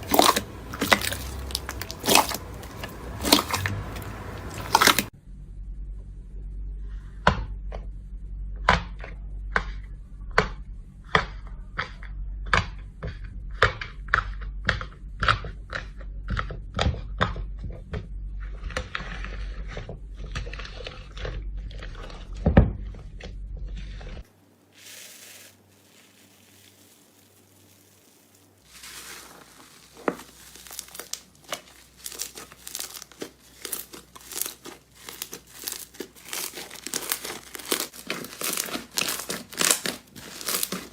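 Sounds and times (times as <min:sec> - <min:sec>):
slime rapid crackling: 0:00.0 - 0:05.1, 0:24.8 - 0:40.9
low hum: 0:05.1 - 0:08.6.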